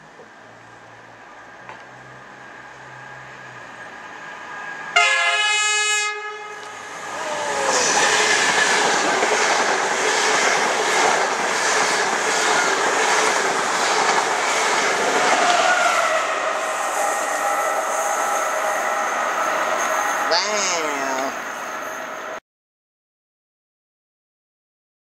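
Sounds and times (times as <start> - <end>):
train rushing past: 0.4 - 22.4
train horn blast: 5.0 - 6.8, 15.4 - 21.3.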